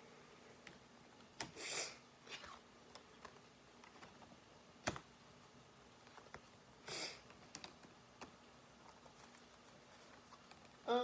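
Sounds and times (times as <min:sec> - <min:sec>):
person sniffing: 0:01.5 - 0:02.0, 0:06.8 - 0:07.2.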